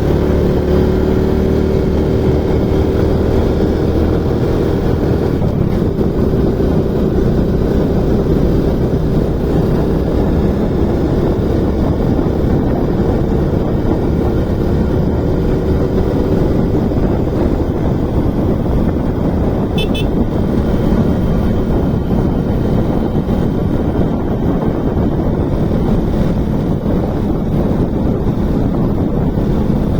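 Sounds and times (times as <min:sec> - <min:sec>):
motorcycle engine running: 0:00.0 - 0:29.9
wind and road noise: 0:00.0 - 0:29.9
double horn beep: 0:19.7 - 0:20.2.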